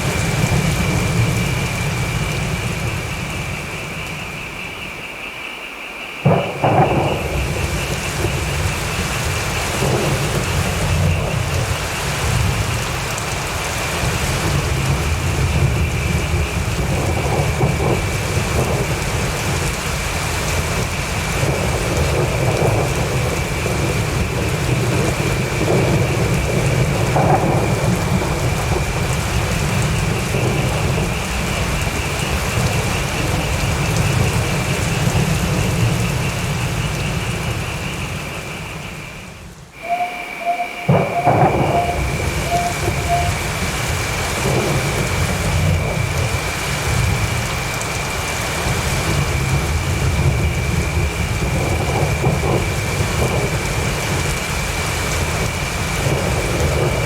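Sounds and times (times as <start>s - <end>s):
rolling thunder: 0.0s - 4.8s, 6.2s - 39.1s, 39.8s - 57.0s
heavy rain: 0.0s - 57.0s
loud thunderclap: 6.2s - 37.7s, 39.8s - 47.5s, 48.4s - 57.0s
thin high tone: 39.8s - 43.7s.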